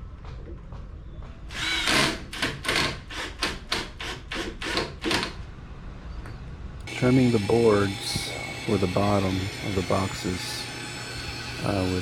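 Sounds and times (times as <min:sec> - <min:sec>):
hand saw cutting wood: 0:06.9 - 0:12.0.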